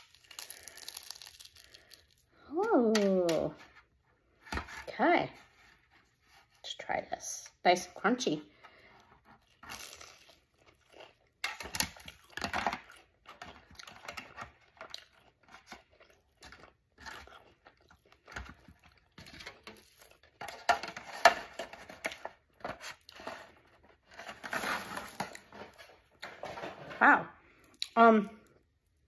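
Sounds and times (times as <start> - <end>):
crunching and chewing: 0.0 - 2.4, 9.1 - 25.5.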